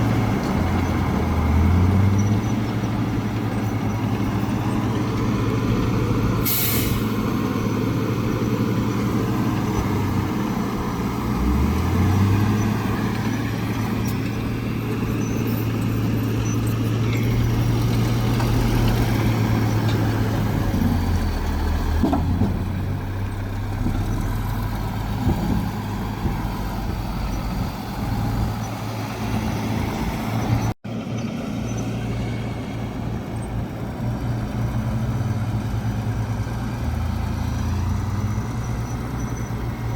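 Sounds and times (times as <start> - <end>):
diesel machinery running under load: 0.0 - 39.9
air hiss: 6.4 - 7.2.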